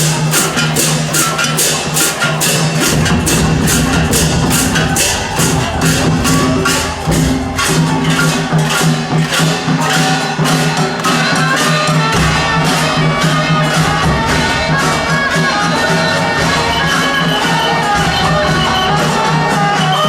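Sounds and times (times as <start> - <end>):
percussion beat: 0.0 - 20.0
reedy melodic tones: 2.6 - 9.7, 11.5 - 20.0.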